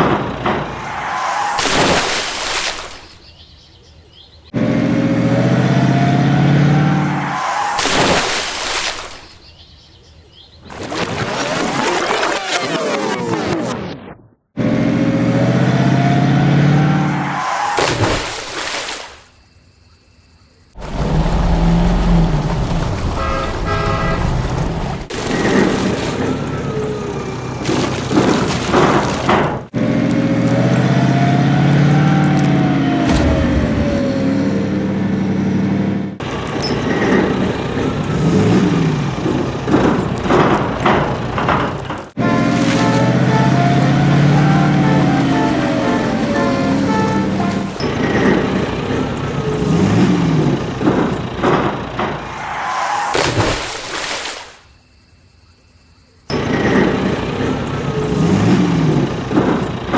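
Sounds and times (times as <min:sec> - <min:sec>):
truck engine revving: 0:00.0 - 0:02.4, 0:04.5 - 0:08.5, 0:14.6 - 0:18.3, 0:20.7 - 0:53.2, 0:56.3 - 0:59.9.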